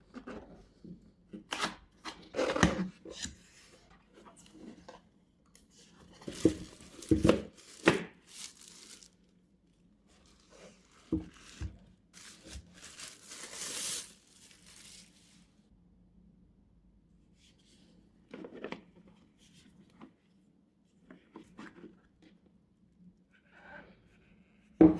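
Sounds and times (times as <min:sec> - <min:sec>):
packaging rustling: 0:06.0 - 0:09.3, 0:10.1 - 0:15.6
packaging tearing and crinkling: 0:06.2 - 0:09.3, 0:10.2 - 0:15.4.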